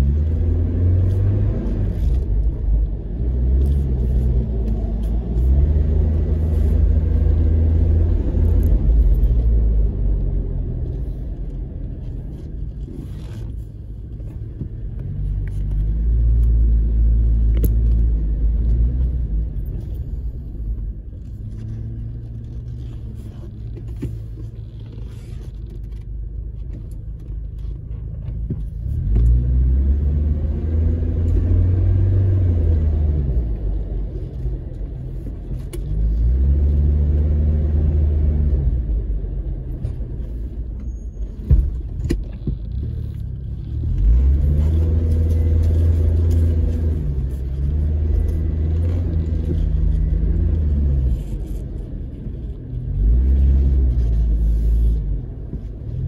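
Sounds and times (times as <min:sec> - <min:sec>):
vehicle engine revving: 0:00.0 - 0:13.6, 0:28.6 - 0:40.6, 0:41.8 - 0:56.0.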